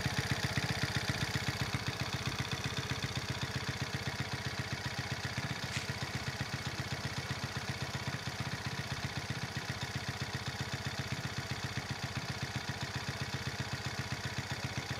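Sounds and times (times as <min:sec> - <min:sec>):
small motorcycle engine idling: 0:00.0 - 0:14.9.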